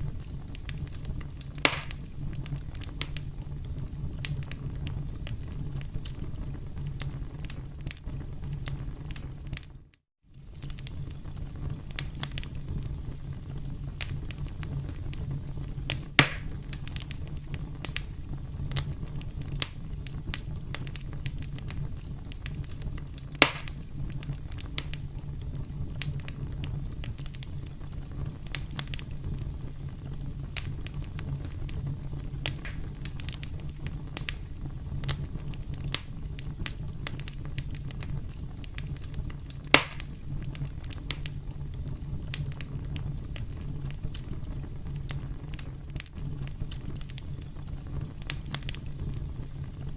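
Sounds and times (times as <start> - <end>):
campfire crackling: 0.0 - 49.9
loud fire pops: 0.0 - 49.9.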